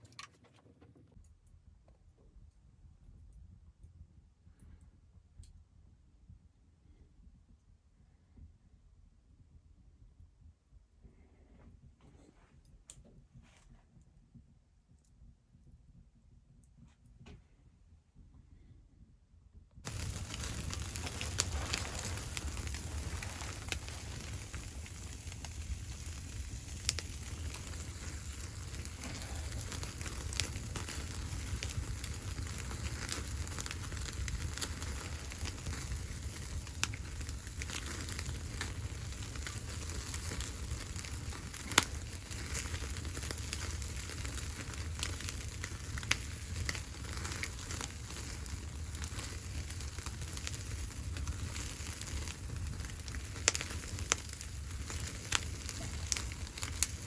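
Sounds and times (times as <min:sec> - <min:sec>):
fire crackles and pops: 0:00.0 - 0:01.3, 0:19.8 - 0:57.0
wood fire hissing in stove: 0:19.8 - 0:57.0.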